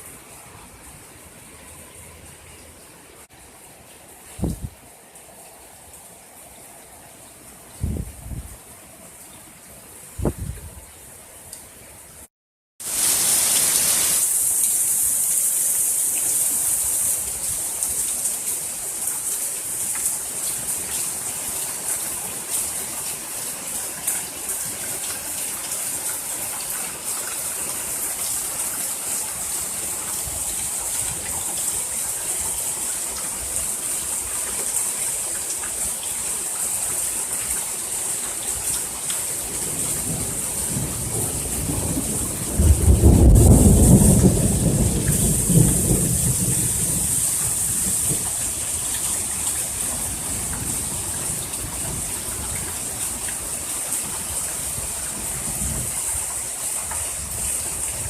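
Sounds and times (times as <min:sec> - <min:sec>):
heavy rain pouring: 0:12.8 - 0:58.0.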